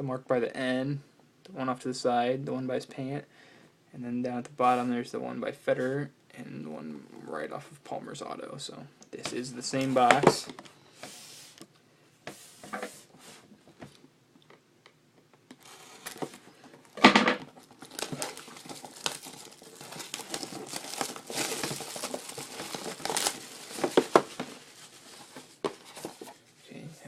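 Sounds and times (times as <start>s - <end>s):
plastic wrap crinkling: 15.6s - 26.4s
plastic wrap ripping: 17.5s - 25.6s.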